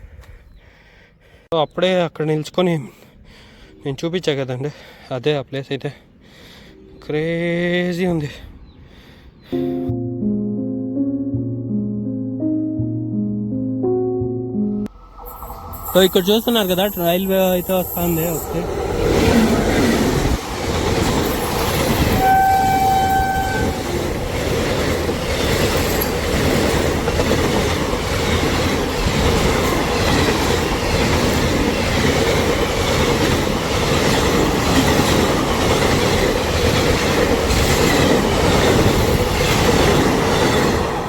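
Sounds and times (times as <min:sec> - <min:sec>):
train rumbling past: 0:14.9 - 0:41.0
train horn blast: 0:22.0 - 0:23.9.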